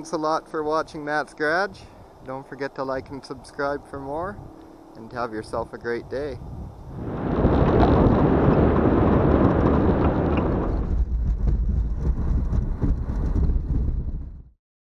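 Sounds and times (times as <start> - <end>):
car engine rumble: 6.5 - 14.5.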